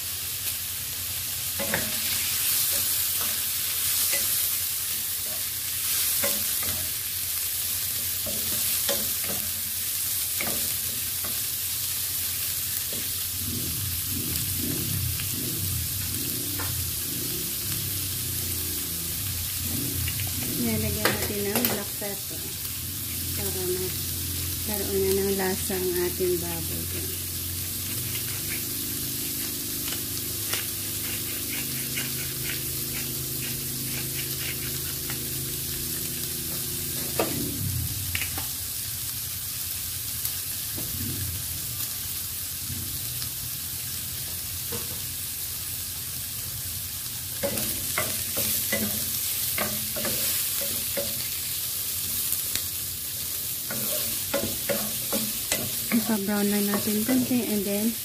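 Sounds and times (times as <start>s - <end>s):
meat sizzling in hot oil: 0.0s - 58.0s
wooden spatula scraping pan: 27.8s - 28.8s, 29.9s - 35.2s.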